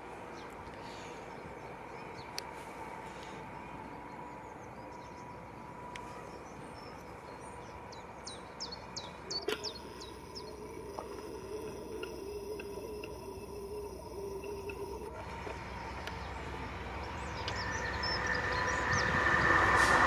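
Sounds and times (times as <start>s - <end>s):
faint steady hum: 0.0s - 20.0s
small bird chirping: 8.6s - 19.2s.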